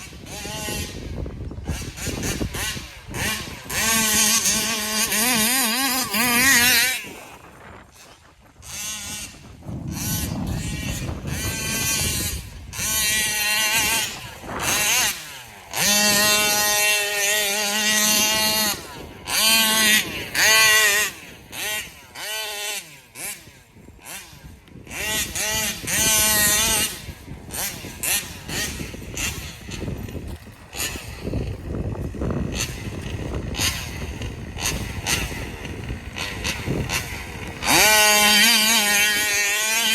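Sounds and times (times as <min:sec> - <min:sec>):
small two-stroke engine revving: 0:00.0 - 0:39.9.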